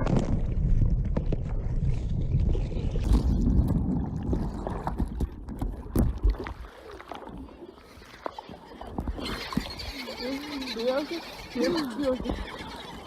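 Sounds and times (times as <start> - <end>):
wind rumble: 0.0 - 6.7
water sloshing around kayak: 1.1 - 13.0.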